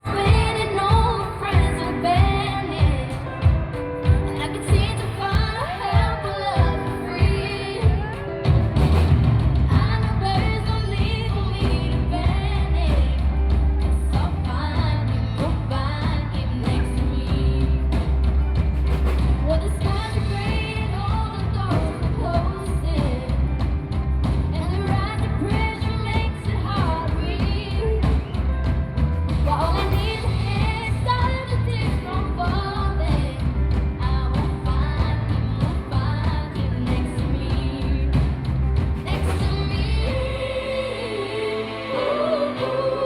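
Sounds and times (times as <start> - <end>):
lead singer singing: 0.0 - 8.8, 39.0 - 43.0
pop-rock band playing: 0.0 - 43.0
heavy bass line: 6.6 - 43.0.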